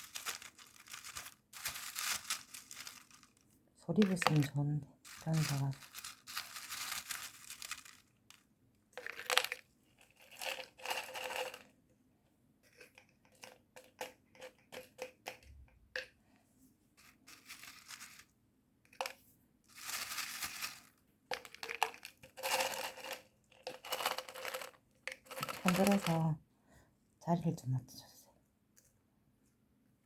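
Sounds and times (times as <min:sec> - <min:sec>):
stones poured into plastic container: 0:09.0 - 0:09.6, 0:19.7 - 0:26.3.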